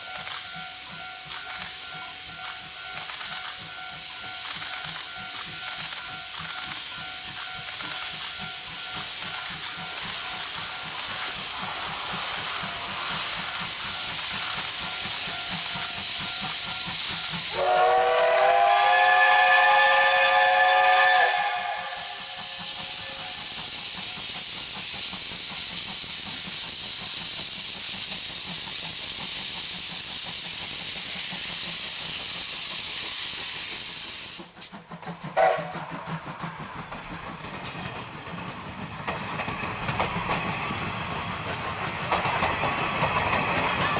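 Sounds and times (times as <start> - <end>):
steam locomotive hissing: 0.0 - 43.9
steam whistle blowing: 17.2 - 23.8, 35.4 - 35.9.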